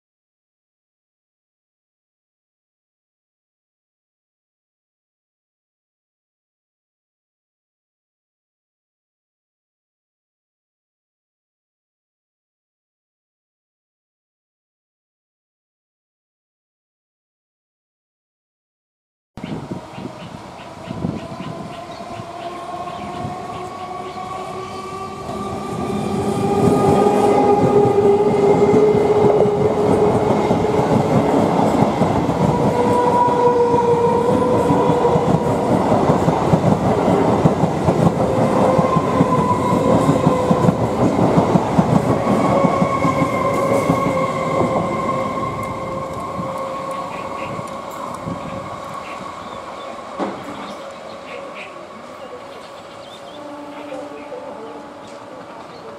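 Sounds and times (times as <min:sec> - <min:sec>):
electric train whine: 0:19.4 - 0:55.9.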